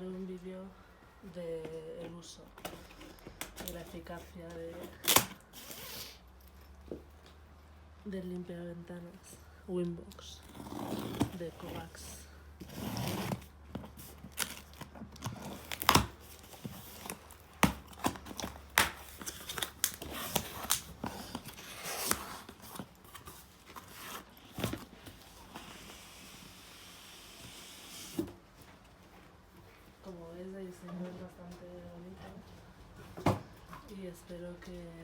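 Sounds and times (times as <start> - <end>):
packaging tearing and crinkling: 12.7 - 25.7.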